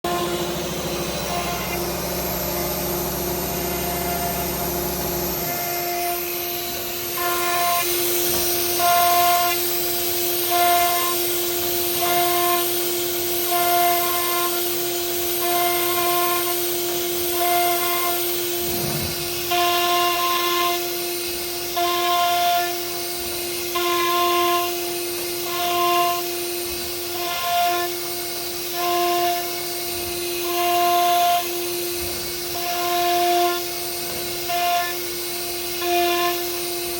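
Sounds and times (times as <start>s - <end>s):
higher pitched whine: 0.0s - 7.2s
cnc router spindle whine: 0.0s - 36.9s.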